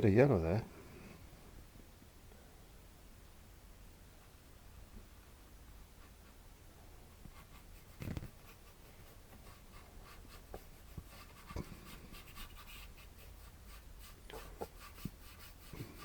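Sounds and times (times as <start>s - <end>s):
paintbrush scrubbing on canvas: 7.3s - 16.0s.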